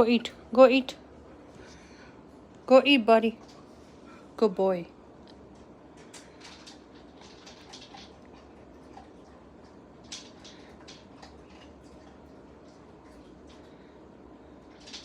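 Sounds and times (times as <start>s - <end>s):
dog eating crunches: 5.2s - 15.0s.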